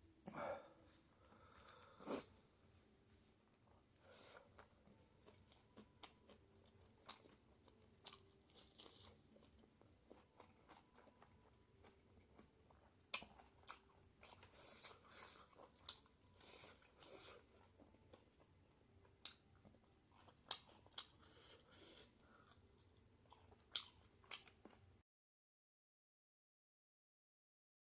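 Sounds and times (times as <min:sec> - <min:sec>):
close chewing and biting: 0:04.4 - 0:24.8.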